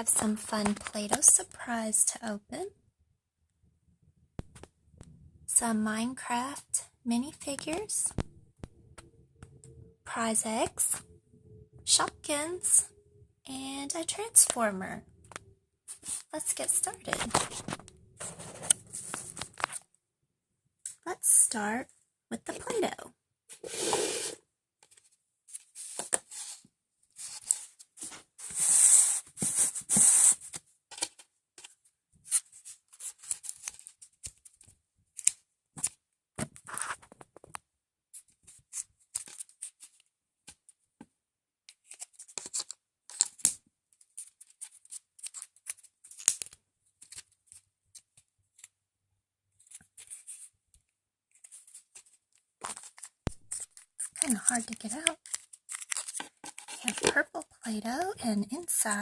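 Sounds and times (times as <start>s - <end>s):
toy packaging crinkling and tearing: 44.0s - 48.2s, 51.4s - 57.5s
packaging rustling: 55.2s - 57.2s.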